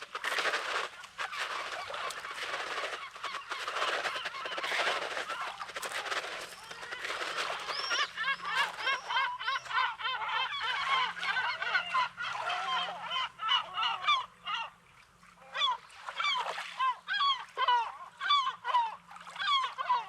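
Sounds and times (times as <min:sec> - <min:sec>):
sea waves washing onto beach: 0:00.0 - 0:08.8
bird calling: 0:00.0 - 0:14.8.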